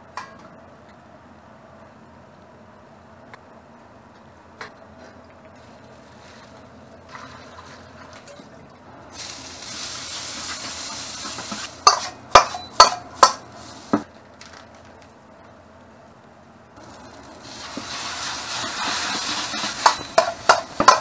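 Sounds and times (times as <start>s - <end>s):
noodles sizzling in a pan: 9.1s - 14.1s, 16.8s - 21.0s.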